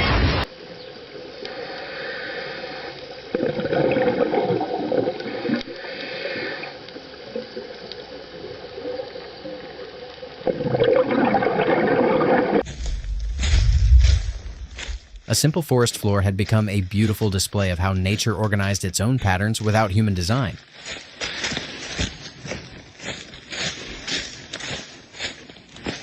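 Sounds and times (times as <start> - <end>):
water flowing and splashing: 3.3 - 15.4.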